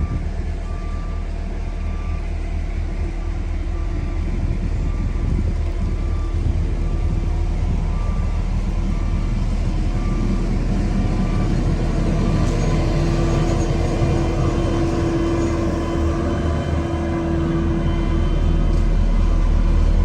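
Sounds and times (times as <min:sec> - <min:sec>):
diesel machinery running: 0:00.0 - 0:20.0
steady whine: 0:00.0 - 0:20.0.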